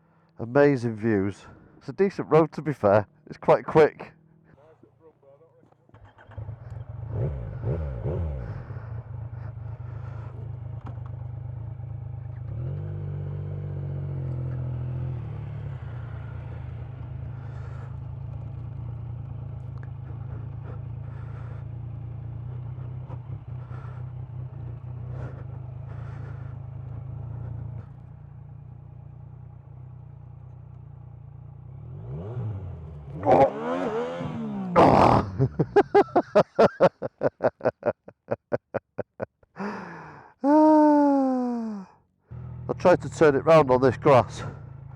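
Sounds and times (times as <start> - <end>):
motorcycle engine idling: 4.2 - 33.8, 42.1 - 44.9
motorcycle engine revving: 5.7 - 36.8, 40.8 - 44.9.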